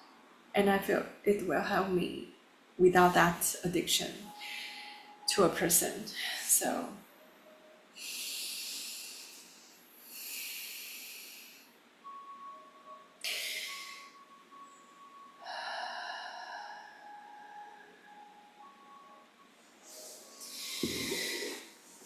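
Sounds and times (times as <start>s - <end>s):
person breathing deeply: 20.0s - 21.8s.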